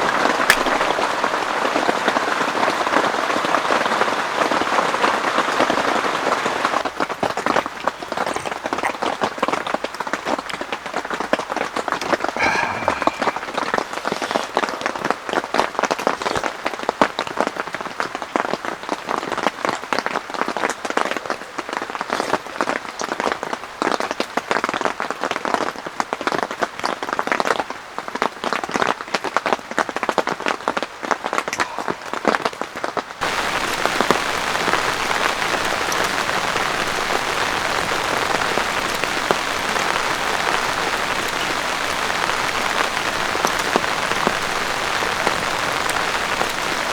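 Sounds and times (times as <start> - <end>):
heavy rain falling: 0.0 - 10.7, 31.5 - 46.9.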